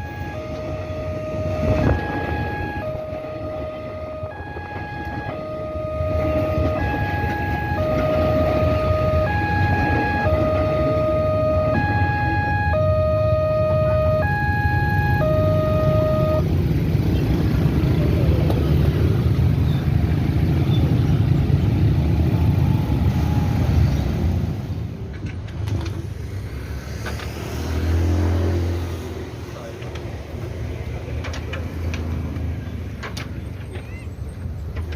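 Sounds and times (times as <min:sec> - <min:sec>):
level crossing two-tone alarm: 0:00.0 - 0:16.4.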